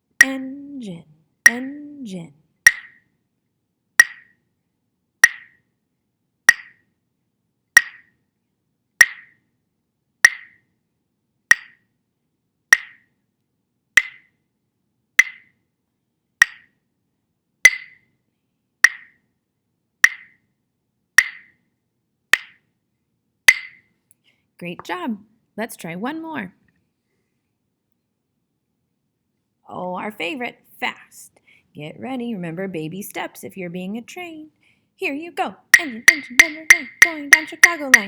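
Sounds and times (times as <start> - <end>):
woodblock metronome clicks: 0.2 - 0.4, 1.5 - 1.8, 2.7 - 3.0, 4.0 - 4.3, 5.2 - 5.6, 6.5 - 6.8, 7.8 - 8.1, 9.0 - 9.3, 10.3 - 10.6, 11.5 - 11.8, 12.8 - 13.0, 14.0 - 14.3, 15.2 - 15.5, 16.4 - 16.7, 17.7 - 18.0, 18.8 - 19.1, 20.0 - 20.4, 21.2 - 21.5, 22.4 - 22.6, 23.5 - 23.8, 35.7 - 38.0.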